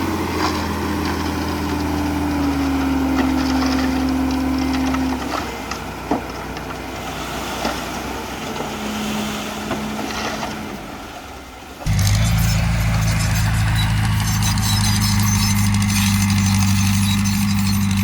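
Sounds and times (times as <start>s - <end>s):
diesel engine running: 0.0s - 7.6s, 11.8s - 18.0s.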